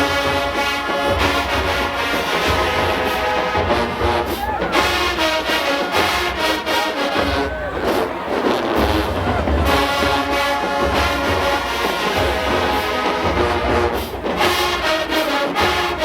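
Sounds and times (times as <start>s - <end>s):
marching band brass: 0.0s - 16.0s
bass drums: 7.2s - 14.4s.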